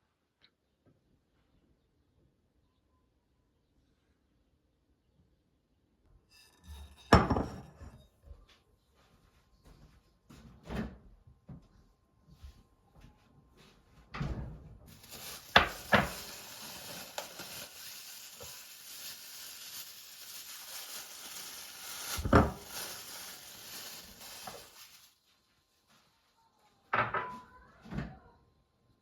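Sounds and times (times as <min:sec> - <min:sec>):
steady hiss: 0:14.9 - 0:25.2.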